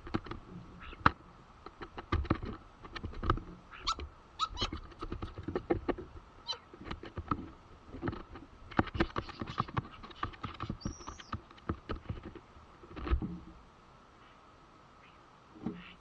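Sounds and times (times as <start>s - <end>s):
birds tapping and scratching: 0.0s - 13.6s.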